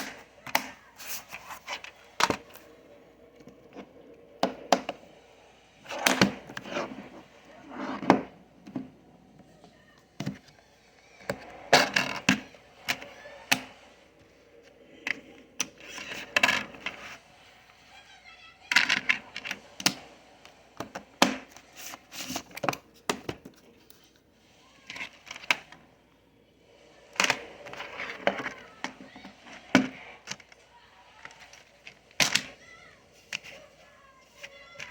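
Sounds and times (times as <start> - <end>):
hard objects clicking and knocking: 0.0 - 5.2, 18.7 - 24.2.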